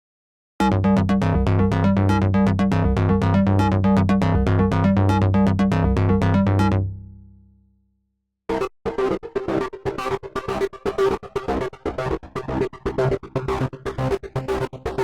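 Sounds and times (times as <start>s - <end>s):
held synth bass: 0.6s - 7.2s.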